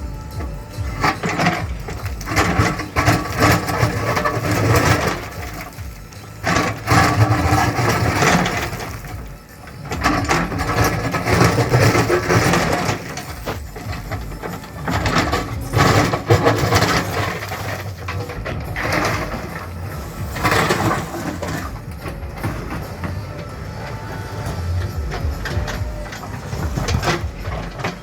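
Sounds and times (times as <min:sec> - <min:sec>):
bucket crushing soil and stone: 0:00.0 - 0:28.0
diesel engine under load: 0:00.0 - 0:28.0.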